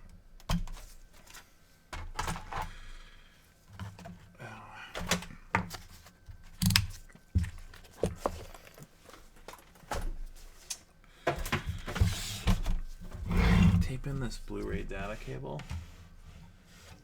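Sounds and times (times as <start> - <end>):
hands handling tape and parts: 5.0 - 13.2
scratchy rasp: 13.1 - 15.5.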